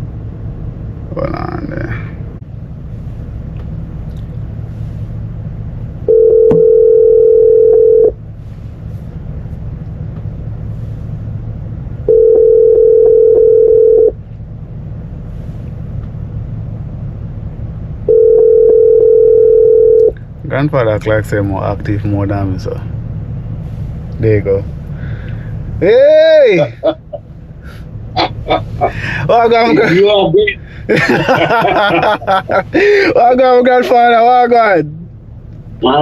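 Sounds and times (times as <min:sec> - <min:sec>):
low steady hum: 0:00.0 - 0:36.0
telephone ringback tone: 0:06.1 - 0:08.1, 0:12.1 - 0:14.1, 0:18.1 - 0:20.1.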